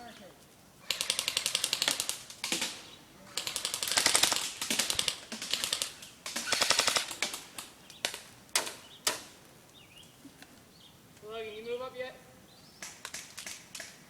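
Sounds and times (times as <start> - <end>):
airsoft gun firing bursts: 0.9 - 2.8, 3.4 - 7.5.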